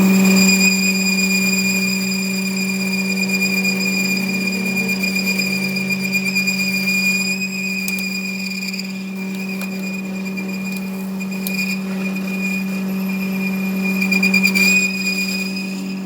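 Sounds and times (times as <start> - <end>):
machine humming and whining: 0.0 - 16.0.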